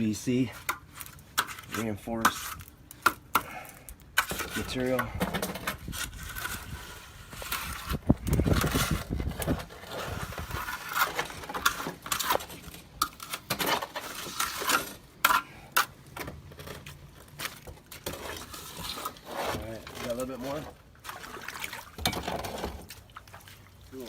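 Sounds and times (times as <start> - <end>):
wind rumble on microphone: 5.1 - 10.8.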